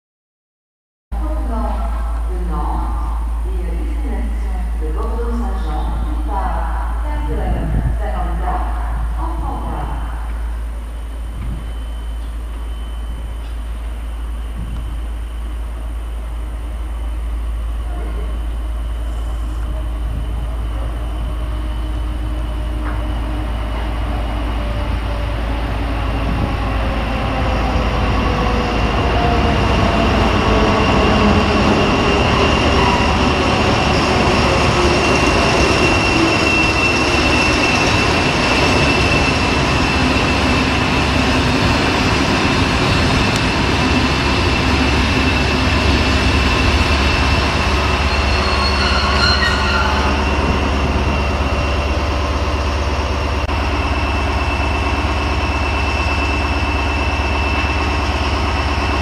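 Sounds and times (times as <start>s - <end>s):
diesel locomotive passing: 1.2s - 59.0s
high wheel squeal: 32.0s - 42.3s, 44.6s - 52.8s.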